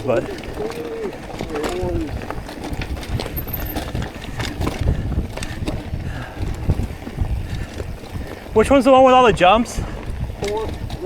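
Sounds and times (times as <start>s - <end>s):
bike clicks and rattles: 0.0s - 11.0s
bike tyres rumbling on dirt: 0.0s - 11.0s.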